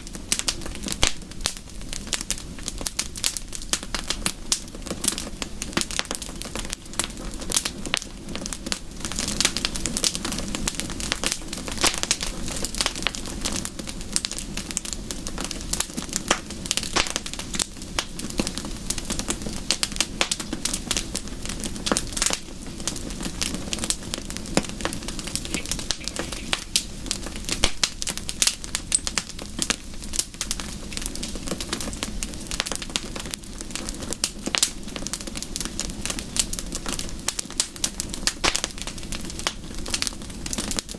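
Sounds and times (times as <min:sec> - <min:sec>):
wood fire crackling: 0:00.0 - 0:40.9
rain rushing: 0:21.4 - 0:29.6.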